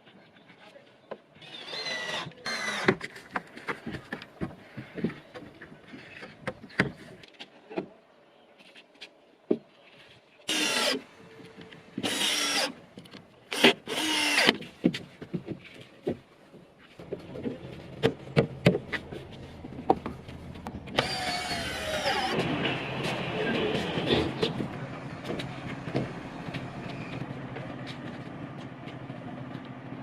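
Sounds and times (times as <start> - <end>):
whirring power tool: 1.4 - 3.0, 10.5 - 11.0, 12.0 - 12.7, 13.5 - 14.6, 20.9 - 22.8.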